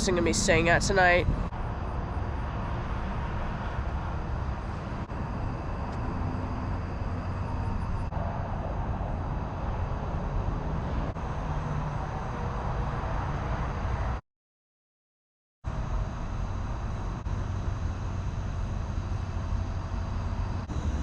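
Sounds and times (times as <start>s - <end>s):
rumble of vehicle traffic: 0.0s - 14.2s, 15.7s - 21.0s.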